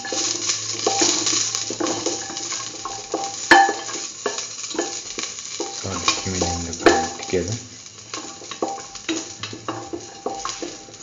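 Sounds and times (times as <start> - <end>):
sizzling in hot oil: 0.0 - 11.0
clinks against metal pan: 0.9 - 5.0.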